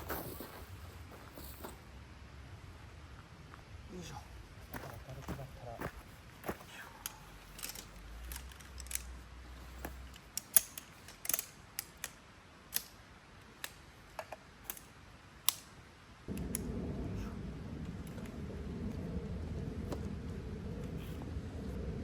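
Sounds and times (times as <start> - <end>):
camping gear clicks and knocks: 6.4 - 15.7
steady low rushing noise: 16.3 - 22.0.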